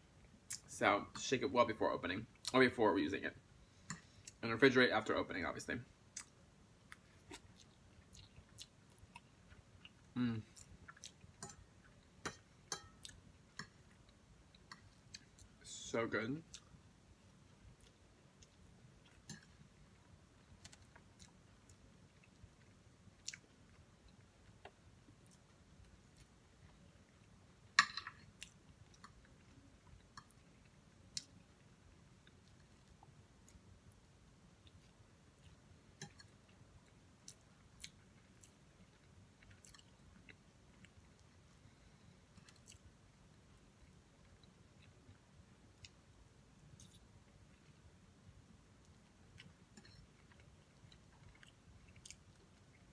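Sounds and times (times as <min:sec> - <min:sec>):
chewing with wet mouth clicks: 0:06.1 - 0:15.6, 0:16.5 - 0:16.7, 0:17.4 - 0:27.4, 0:28.1 - 0:33.6, 0:34.6 - 0:41.4, 0:42.3 - 0:43.0, 0:46.6 - 0:47.9, 0:48.8 - 0:52.9.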